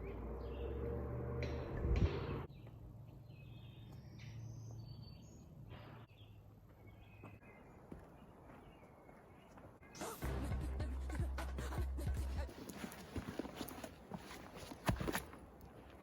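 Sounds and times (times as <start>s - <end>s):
outdoor background noise: 0.0s - 16.0s
bird chirps: 2.1s - 10.2s.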